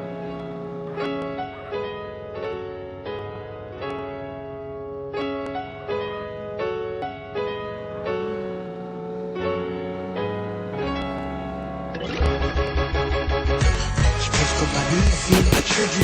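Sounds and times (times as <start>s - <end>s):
piano sustained chords: 0.0s - 15.3s.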